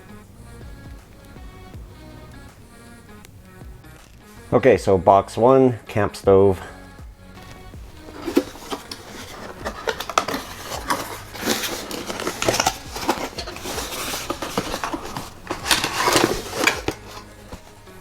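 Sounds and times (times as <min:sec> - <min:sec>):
cardboard packaging rustling: 0:07.4 - 0:18.0
knocks and clinks of parts: 0:07.4 - 0:18.0.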